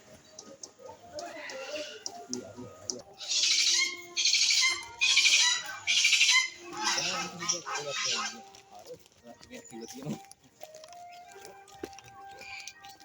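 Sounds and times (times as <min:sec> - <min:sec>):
bird chattering calls: 0:03.1 - 0:08.4
bird squawking harshly: 0:03.2 - 0:08.4.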